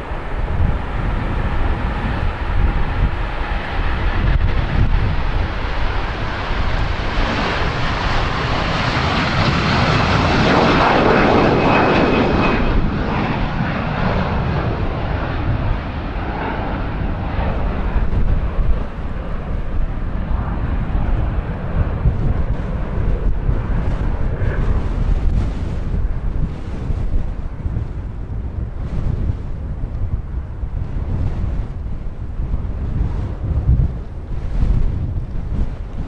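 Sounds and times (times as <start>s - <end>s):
jet engines roaring: 0.0s - 36.0s
wind rumble on microphone: 0.0s - 36.0s.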